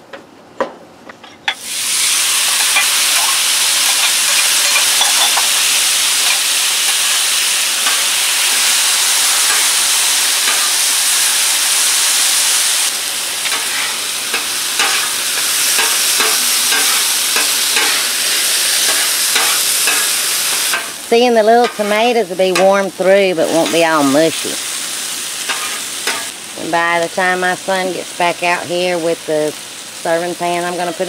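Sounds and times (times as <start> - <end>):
vegetables sizzling on a griddle: 1.5 - 31.0
metal spatula scraping and tapping: 15.8 - 18.0, 18.8 - 21.0, 21.6 - 22.0, 25.5 - 26.3.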